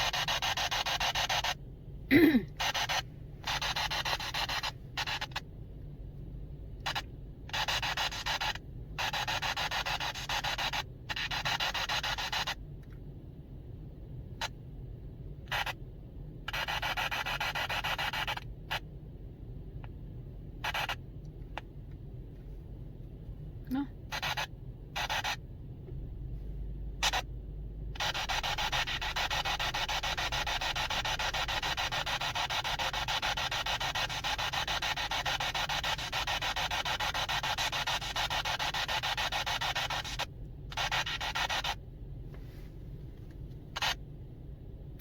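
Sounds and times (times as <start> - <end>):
radio static bursts: 0.0 - 5.4, 6.8 - 12.6, 15.5 - 15.8, 20.6 - 21.0, 24.1 - 25.4, 27.0 - 27.3, 27.9 - 41.8, 43.7 - 44.0
low hum: 18.4 - 32.0.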